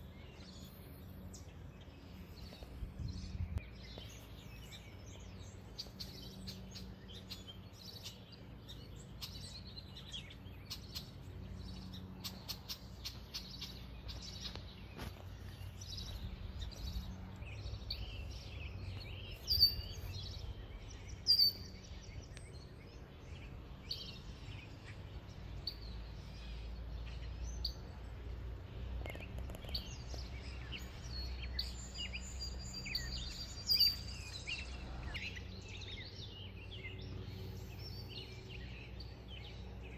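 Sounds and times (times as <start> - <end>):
low outdoor rumble: 0.0 - 39.9
songbirds chirping and singing: 0.0 - 39.9
sharp bird calls: 17.8 - 25.0, 29.0 - 39.9.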